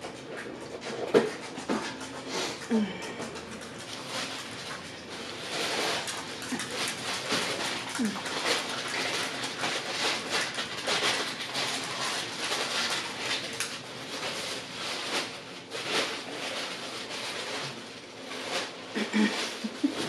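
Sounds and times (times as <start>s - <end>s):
chewing fries: 0.0s - 20.0s.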